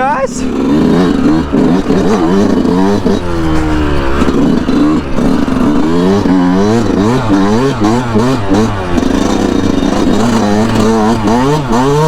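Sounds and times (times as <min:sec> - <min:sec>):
two-stroke engine revving: 0:00.0 - 0:12.0.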